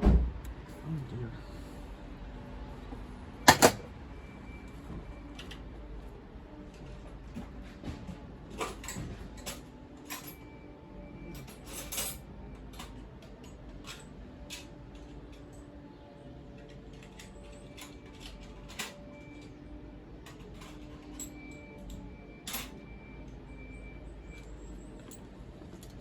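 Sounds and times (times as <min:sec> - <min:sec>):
hand tools clinking on metal parts: 0:03.5 - 0:03.8.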